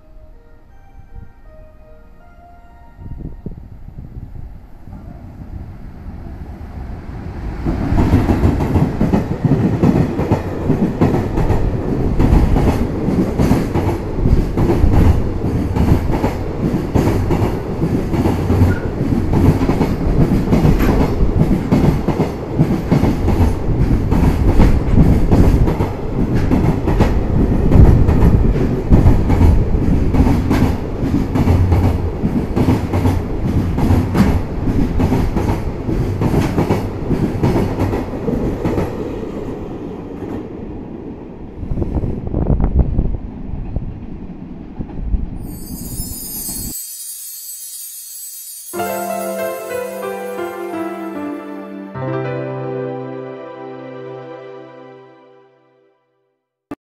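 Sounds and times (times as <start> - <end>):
freight train passing: 0.0 - 55.1.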